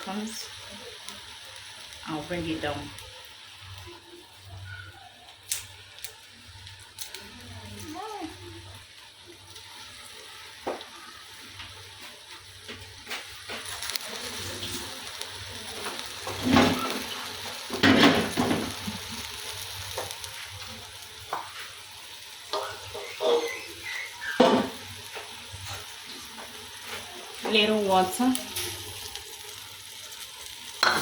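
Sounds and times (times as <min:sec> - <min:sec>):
food sizzling in oil: 0:00.0 - 0:31.0
spoon scraping a pot: 0:22.5 - 0:23.7.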